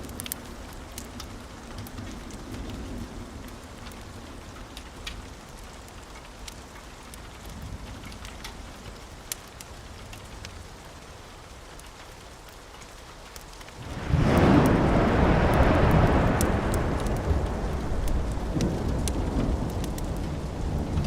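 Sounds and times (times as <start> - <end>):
steady rain: 0.0 - 21.0
faint low rumble: 13.8 - 21.0.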